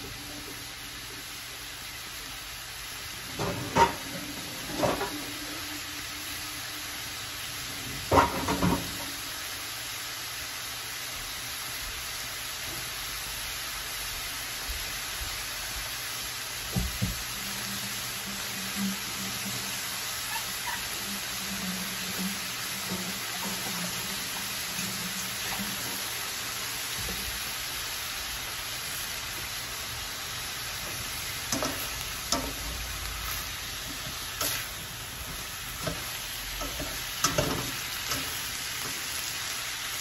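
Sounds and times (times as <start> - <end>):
vegetables sizzling in a pan: 0.0 - 40.0.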